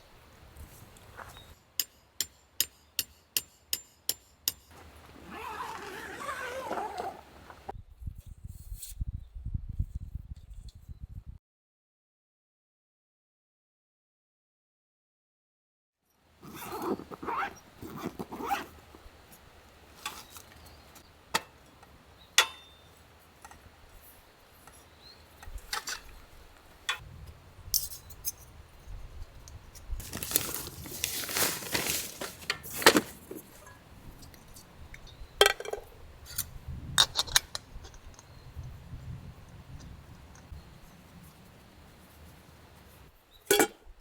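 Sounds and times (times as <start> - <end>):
rustling: 4.7 - 7.7, 16.4 - 21.0, 29.8 - 34.7.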